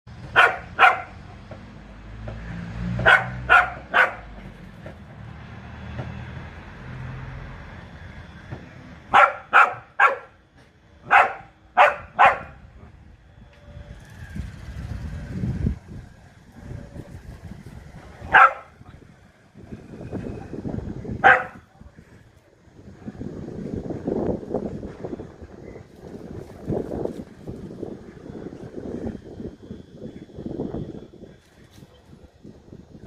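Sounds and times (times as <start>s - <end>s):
dog barking: 0.4s - 1.2s, 3.0s - 4.3s, 9.1s - 10.4s, 11.1s - 12.6s, 18.3s - 18.7s, 21.2s - 21.6s.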